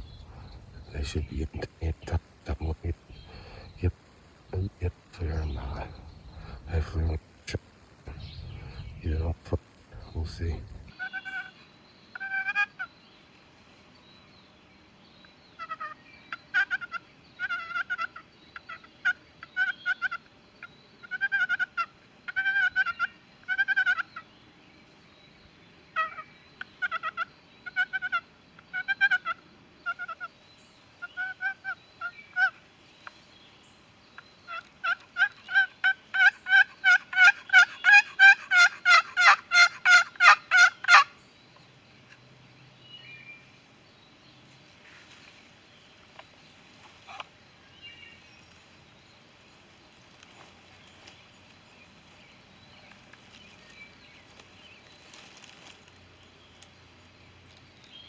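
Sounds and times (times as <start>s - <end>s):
turkey yelping: 11.0s - 11.5s, 12.2s - 12.9s, 15.6s - 20.3s, 21.0s - 24.2s, 26.0s - 30.3s, 31.0s - 32.6s, 34.5s - 41.1s.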